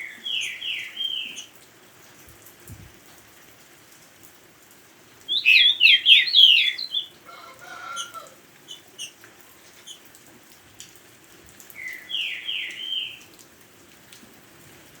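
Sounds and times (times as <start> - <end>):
faint rain hiss: 0.0 - 15.0
bird singing whistled notes: 5.3 - 7.1.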